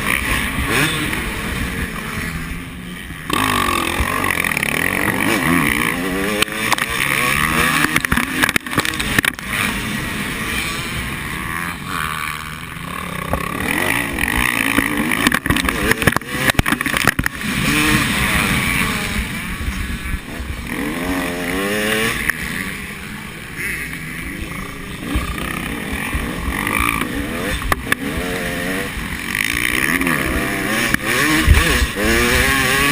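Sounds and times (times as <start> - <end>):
motorcycle engines revving: 0.0 - 32.9
sharp crackles: 13.2 - 18.2.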